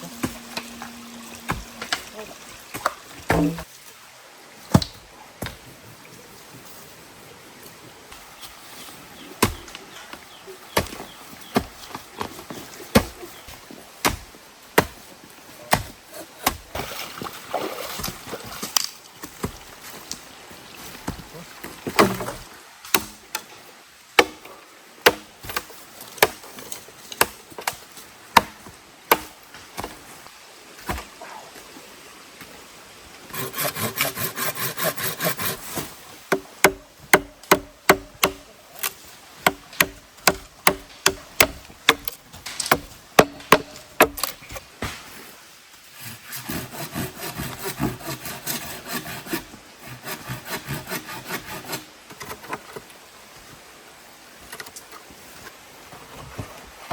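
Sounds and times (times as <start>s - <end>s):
sawing strokes: 33.3s - 36.8s, 45.9s - 51.9s
sharp knocks on wood: 36.3s - 38.4s.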